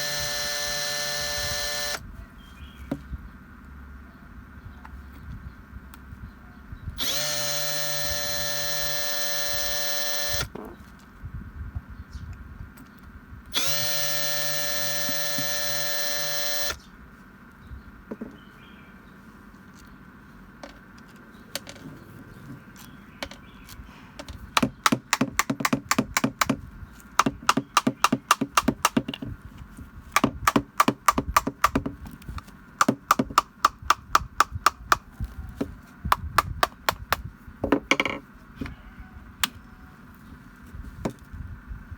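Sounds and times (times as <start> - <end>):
electric power tool motor: 0.0 - 2.0, 7.0 - 10.5, 13.5 - 16.8
rapid sharp taps: 27.2 - 29.2.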